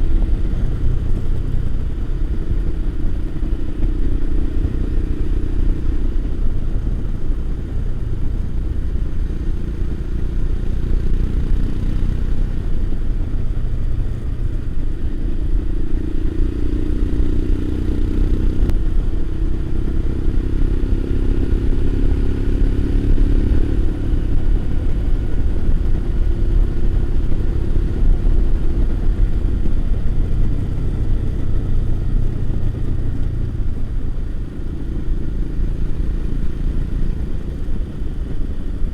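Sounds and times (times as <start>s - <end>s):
motorcycle engine running: 0.0s - 38.9s
wind rumble on microphone: 0.0s - 38.9s.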